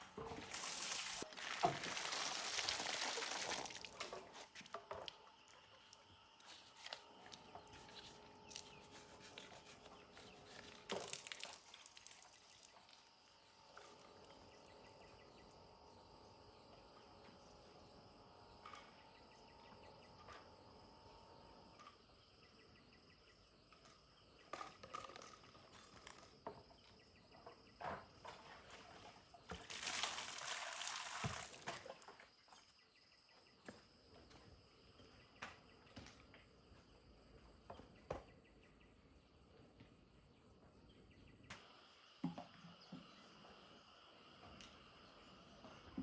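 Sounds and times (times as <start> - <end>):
insects chirring: 41.6 - 46.0.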